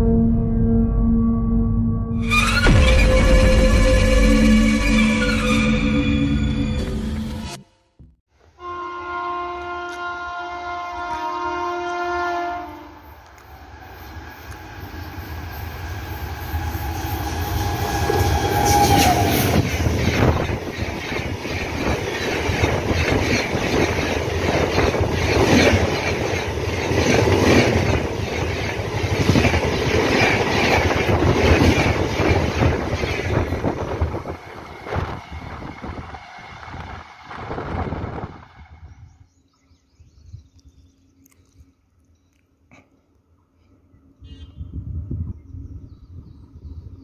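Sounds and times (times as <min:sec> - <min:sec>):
train horn chord: 0:08.6 - 0:13.1
passing train rumble: 0:09.6 - 0:39.6.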